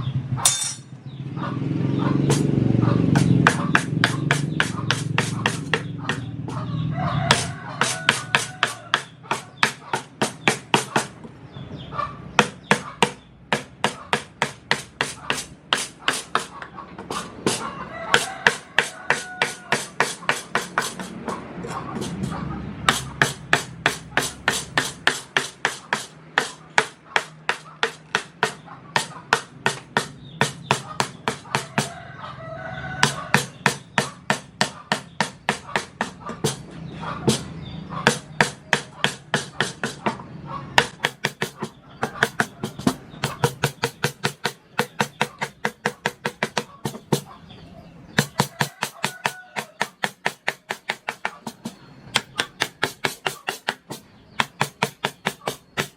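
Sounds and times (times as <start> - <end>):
wooden mallet tapping chisel into wood: 3.1 - 6.6, 7.3 - 11.3, 12.4 - 22.3, 22.9 - 31.9, 33.0 - 40.2, 40.8 - 47.3, 48.1 - 55.9
rooster crowing: 6.5 - 9.5, 17.2 - 21.1, 31.0 - 33.6, 48.2 - 50.0.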